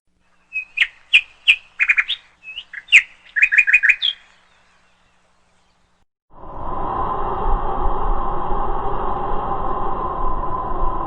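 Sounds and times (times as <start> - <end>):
small bird chirping: 0.2 - 6.0
steady rushing noise with hum: 6.3 - 11.0.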